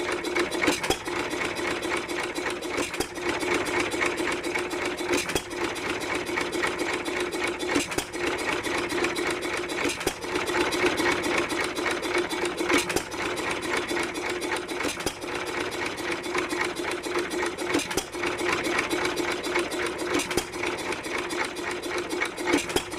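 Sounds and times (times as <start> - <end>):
engine knock: 0.0 - 22.9
stationary engine clattering: 0.0 - 22.9.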